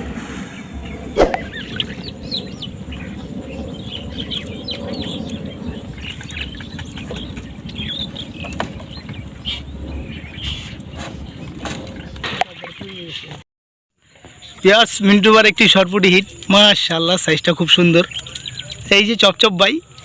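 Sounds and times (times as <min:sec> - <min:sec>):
small birds chirping: 0:00.6 - 0:13.4, 0:14.1 - 0:20.0.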